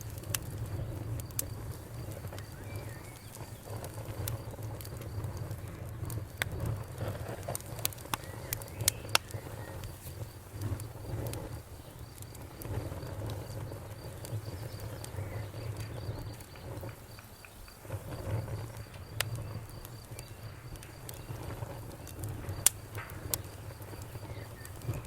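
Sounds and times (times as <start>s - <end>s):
campfire crackling and popping: 0.0s - 25.0s
crickets chirping: 0.0s - 25.0s.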